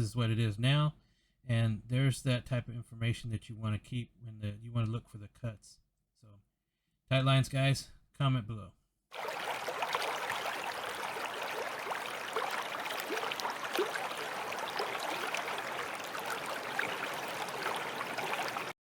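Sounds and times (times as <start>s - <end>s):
water trickling and gurgling: 9.1s - 18.8s.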